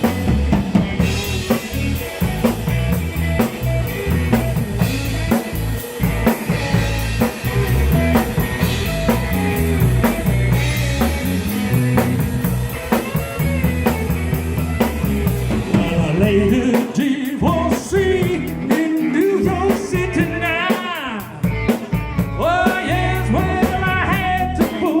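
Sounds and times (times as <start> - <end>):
rock and roll band music: 0.0 - 25.0.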